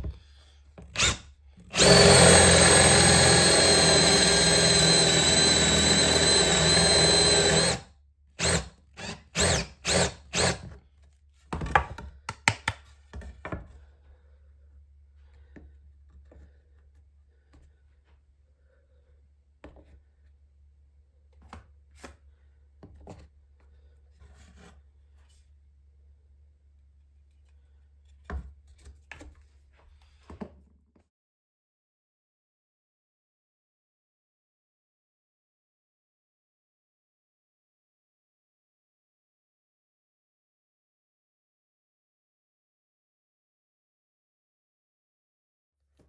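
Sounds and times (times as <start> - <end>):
cordless drill boring into wood: 1.0 - 7.8, 8.4 - 10.7.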